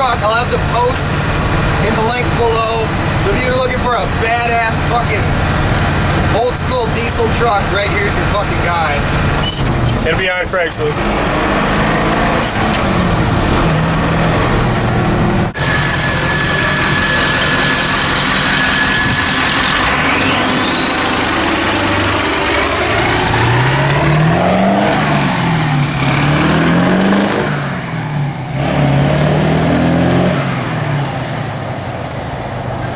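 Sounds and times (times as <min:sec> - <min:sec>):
diesel truck engine accelerating: 0:00.0 - 0:32.9
high whine: 0:12.4 - 0:32.9.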